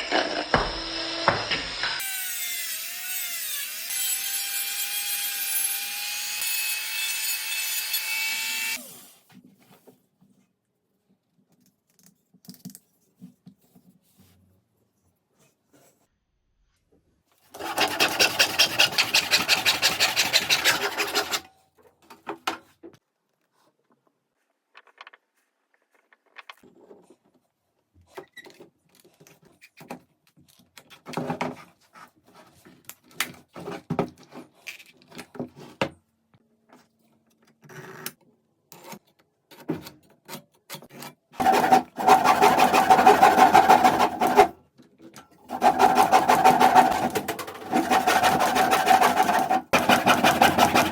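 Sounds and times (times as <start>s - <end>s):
electric power tool cutting wood: 0.0s - 9.1s, 17.6s - 21.4s, 41.4s - 44.5s, 45.5s - 50.9s.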